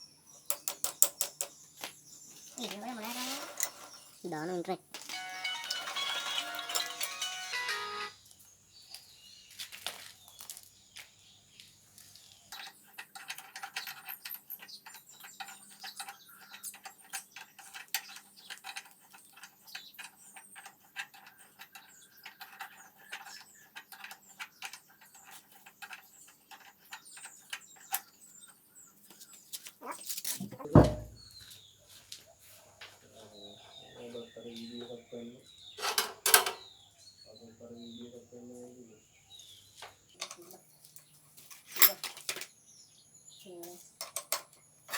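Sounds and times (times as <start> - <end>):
small metal parts clinking: 2.4 - 8.1, 12.5 - 28.1, 40.2 - 42.5.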